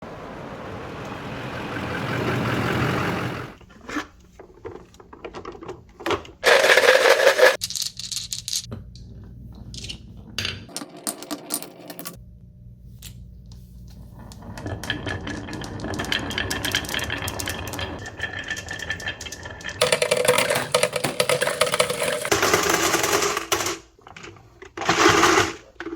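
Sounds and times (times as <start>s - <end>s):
marbles rolling along plastic track: 6.4s - 8.5s, 14.2s - 23.9s, 24.8s - 25.8s
marbles clicking and knocking: 14.3s - 23.6s.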